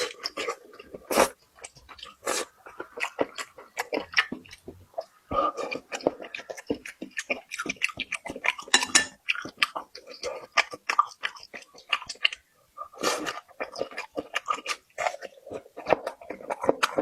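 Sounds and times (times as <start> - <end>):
person chewing crunchy food: 0.0 - 17.0.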